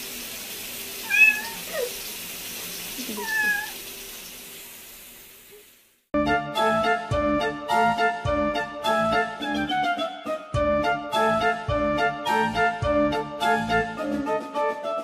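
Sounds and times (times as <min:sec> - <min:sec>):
kitten meowing: 0:01.0 - 0:02.0, 0:03.0 - 0:03.8.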